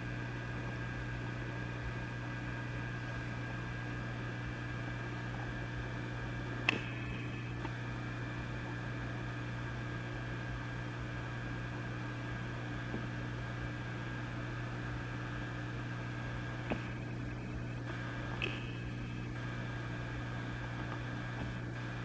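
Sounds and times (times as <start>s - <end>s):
amplifier hum and hiss: 0.0s - 22.0s
brief clicks: 6.6s - 7.8s, 18.3s - 18.9s.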